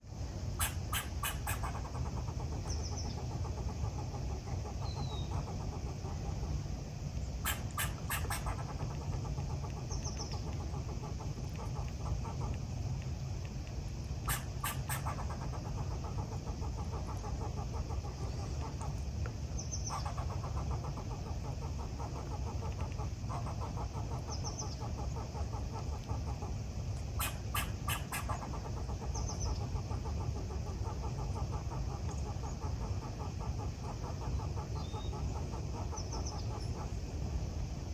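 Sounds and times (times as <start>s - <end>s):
steady low rumble: 0.0s - 37.9s
loud sharp bird calls: 0.5s - 6.6s, 7.2s - 12.6s, 14.2s - 37.0s
birds chirping: 0.5s - 13.2s, 14.1s - 37.1s
high bird trill: 0.6s - 6.4s, 7.3s - 11.1s, 14.2s - 18.8s, 27.1s - 36.8s.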